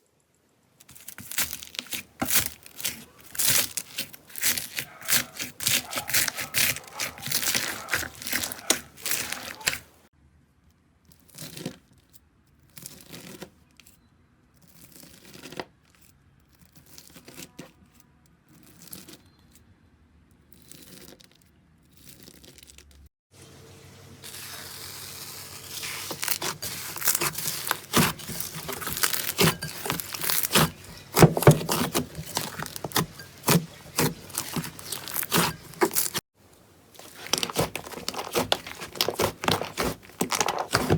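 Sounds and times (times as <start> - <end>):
slime crackling and popping: 0.8 - 9.8, 24.3 - 36.2, 37.0 - 40.9.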